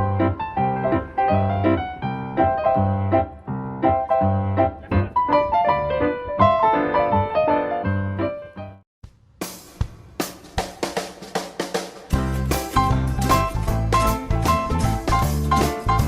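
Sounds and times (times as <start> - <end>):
piano music: 0.0 - 8.8, 12.1 - 16.0.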